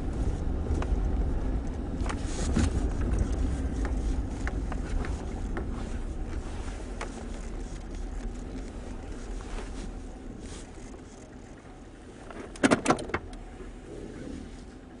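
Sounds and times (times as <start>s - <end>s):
truck engine and road rumble: 0.0s - 15.0s
sharp clicks and knocks: 12.3s - 13.4s.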